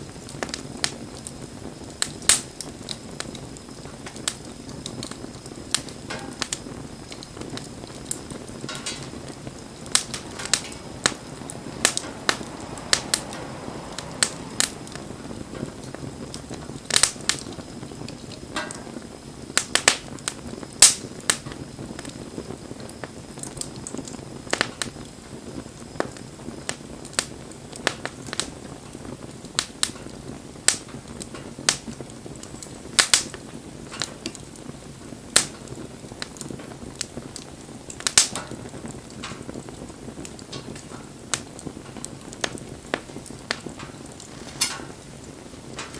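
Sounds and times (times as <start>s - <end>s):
campfire crackling: 0.0s - 45.9s
fire pops and snaps: 0.0s - 45.9s.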